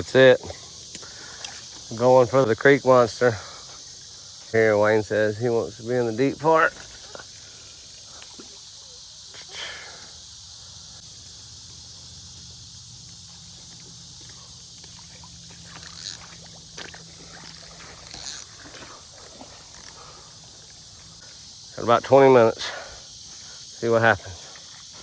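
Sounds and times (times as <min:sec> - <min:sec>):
faint rustles or splashes: 0:00.0 - 0:04.6, 0:06.6 - 0:09.2, 0:13.1 - 0:21.3
high-pitched insect chorus: 0:00.0 - 0:25.0.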